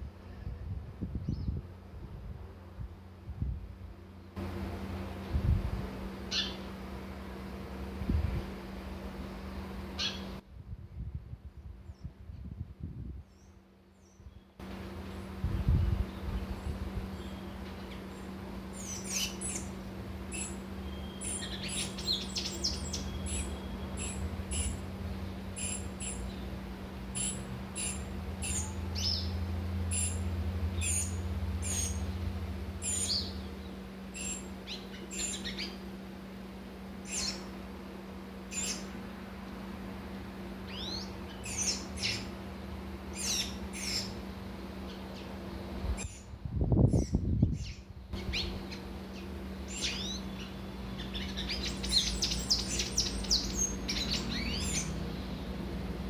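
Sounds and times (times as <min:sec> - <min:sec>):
steady low hum: 0:00.0 - 0:56.0
small birds chirping: 0:01.2 - 0:01.6, 0:06.2 - 0:06.8, 0:10.0 - 0:10.4, 0:13.2 - 0:36.1, 0:36.8 - 0:37.7, 0:38.4 - 0:39.0, 0:40.6 - 0:42.4, 0:43.0 - 0:56.0.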